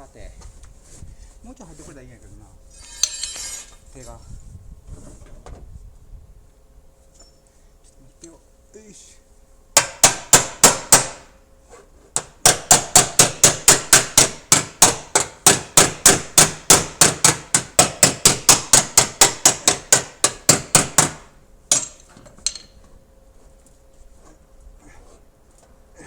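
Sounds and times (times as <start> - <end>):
hammer tapping sheet metal: 9.8 - 11.3, 12.2 - 22.7.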